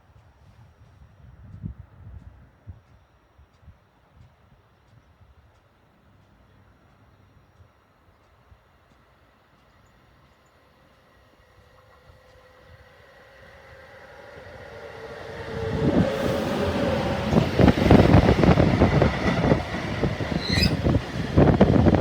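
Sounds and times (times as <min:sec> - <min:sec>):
freight train rumbling past: 0:10.7 - 0:22.0
wheels knocking on rails: 0:14.2 - 0:22.0.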